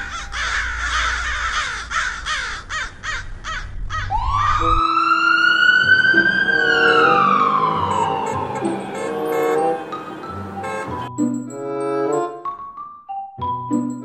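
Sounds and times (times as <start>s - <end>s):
harsh crow-like caws: 0.0s - 4.5s
ambulance siren wailing: 4.1s - 11.1s.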